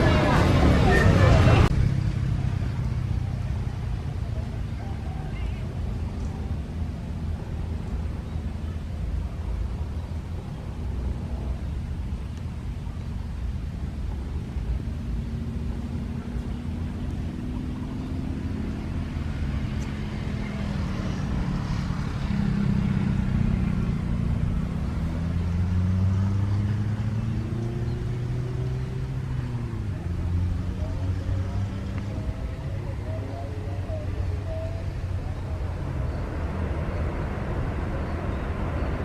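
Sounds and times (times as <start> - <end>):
low engine hum: 0.0 - 39.0
wind rumble on microphone: 0.0 - 39.0.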